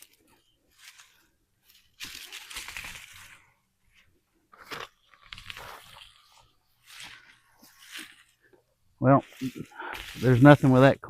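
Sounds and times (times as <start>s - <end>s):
soil crunching and roots tearing: 1.7s - 3.5s, 9.3s - 10.9s.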